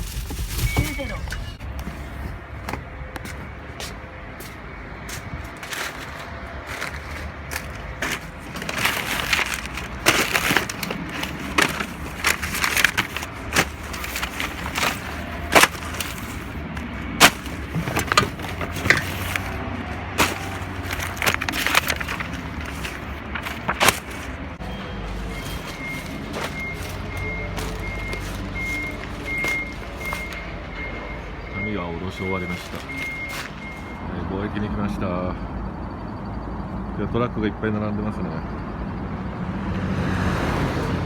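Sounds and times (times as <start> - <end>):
paper bundles thudding onto pile: 0.0 - 1.6, 5.6 - 30.5.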